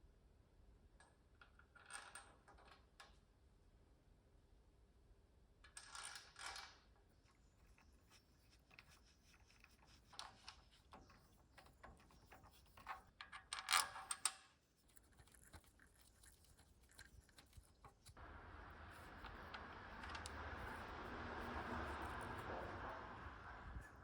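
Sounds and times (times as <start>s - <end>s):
crackly rustling and clinking: 5.7s - 18.2s.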